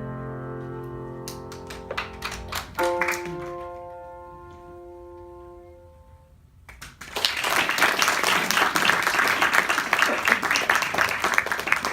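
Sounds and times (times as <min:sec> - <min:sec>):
piano chord: 0:00.0 - 0:06.5
audience applause: 0:01.7 - 0:03.8, 0:06.7 - 0:11.9.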